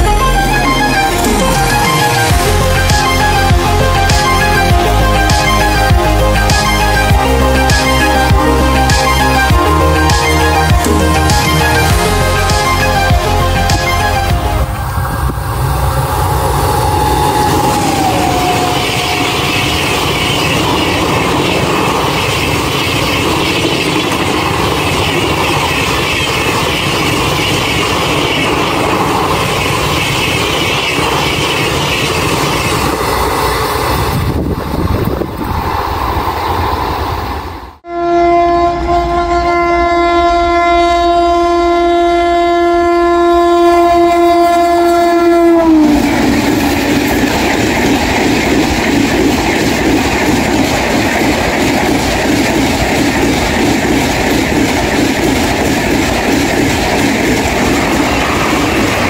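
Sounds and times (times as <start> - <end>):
train coaches clattering on rails: 17.1 - 37.5, 43.8 - 59.0
locomotive horn blast: 37.8 - 46.3.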